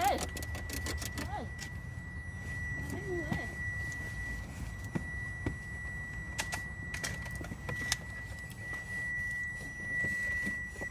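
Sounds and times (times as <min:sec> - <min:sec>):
sharp clicks and light knocks: 0:00.0 - 0:01.7
steady high-pitched tone: 0:00.0 - 0:10.9.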